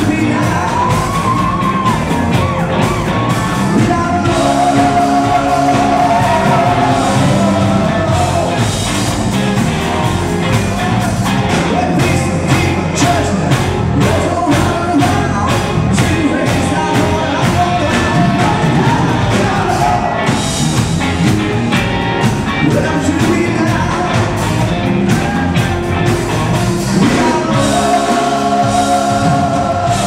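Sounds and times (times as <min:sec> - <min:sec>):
person singing lead vocal: 0:00.0 - 0:08.9, 0:10.5 - 0:20.6, 0:22.5 - 0:25.9, 0:26.8 - 0:30.0
rock band playing: 0:00.0 - 0:30.0
steady drumbeat: 0:00.0 - 0:30.0.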